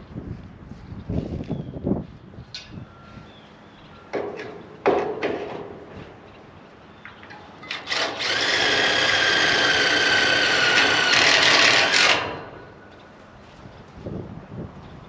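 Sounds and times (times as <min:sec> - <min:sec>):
power drill whining: 0:07.7 - 0:12.6.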